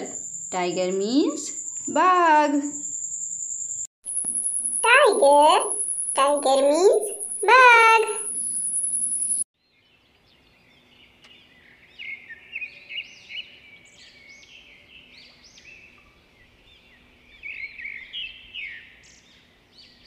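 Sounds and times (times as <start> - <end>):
small birds chirping and singing: 0.0 - 3.9, 4.8 - 20.0
faint outdoor background noise: 9.6 - 20.0.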